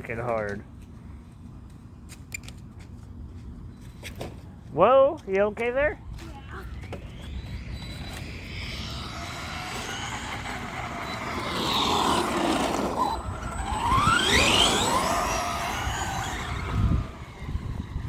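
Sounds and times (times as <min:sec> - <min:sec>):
rc truck electric motor whining: 0:06.0 - 0:18.0.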